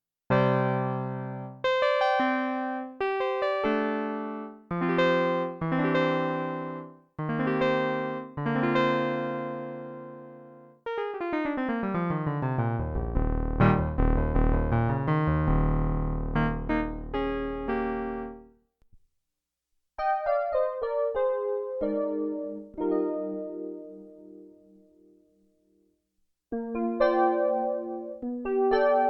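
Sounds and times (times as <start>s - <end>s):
synthesizer chords and notes: 3.6s - 18.5s.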